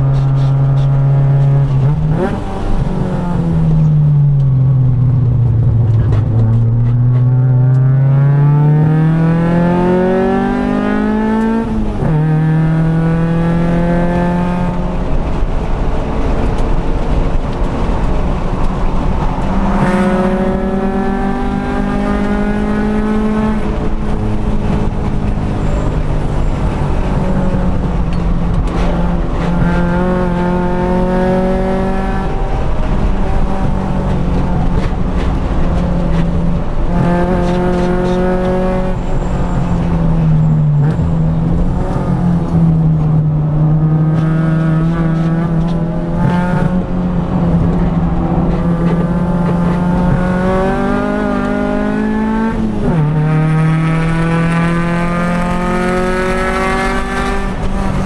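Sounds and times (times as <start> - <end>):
car engine accelerating hard: 0.0 - 58.0.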